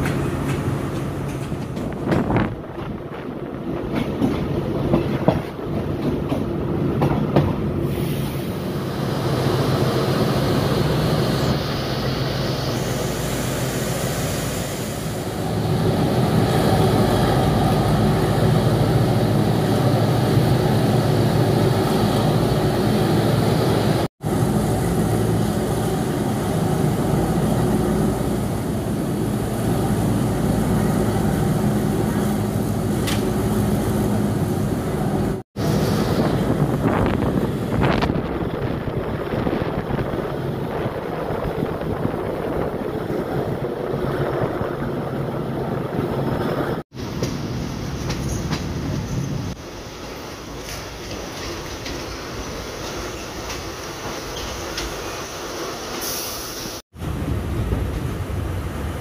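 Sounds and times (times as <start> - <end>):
train wheels clattering on track: 0.0 - 7.9, 31.3 - 34.1, 46.5 - 49.6, 50.2 - 58.6.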